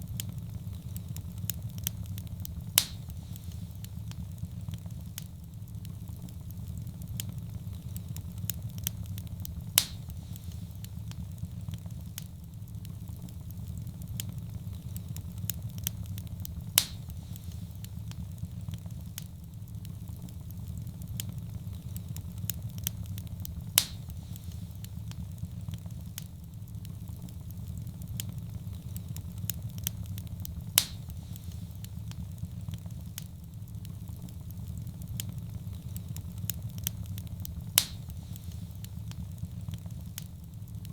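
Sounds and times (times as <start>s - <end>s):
loud pops from fire: 0.0s - 40.9s
wood fire crackling: 0.0s - 40.9s.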